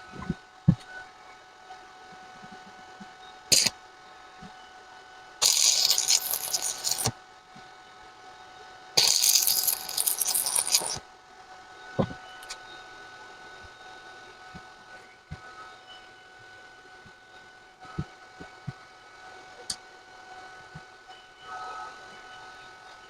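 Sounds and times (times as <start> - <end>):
welding arc crackling: 3.5 - 3.7, 5.4 - 7.1, 9.0 - 11.0.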